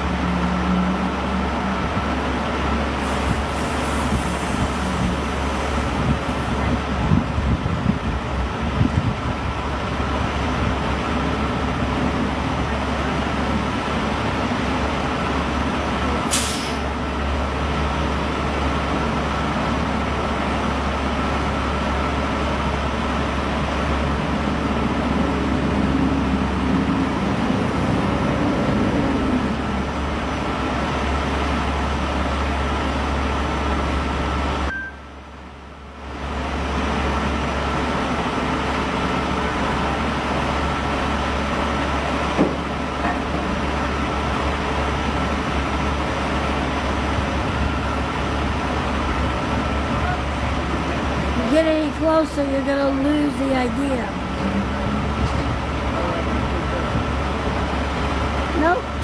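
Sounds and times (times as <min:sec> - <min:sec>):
heavy vehicle engine hum: 0:00.0 - 0:59.0
road noise: 0:00.0 - 0:59.0
air brakes hissing: 0:02.9 - 0:06.6, 0:16.2 - 0:17.0.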